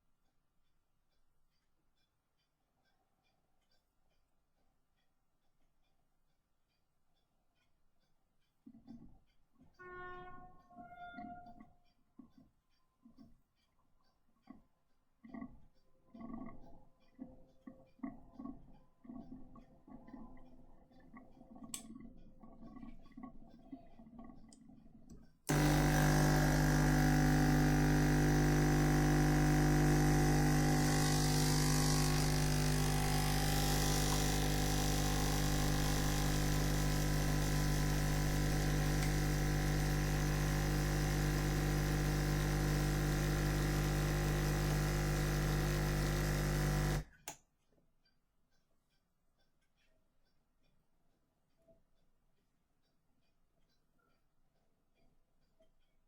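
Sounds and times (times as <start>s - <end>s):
espresso machine pump buzzing: 25.5s - 47.1s.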